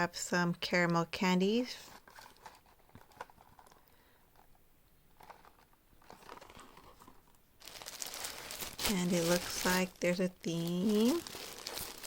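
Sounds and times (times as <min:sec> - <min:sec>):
packaging rustling and clicking: 0:01.8 - 0:12.0.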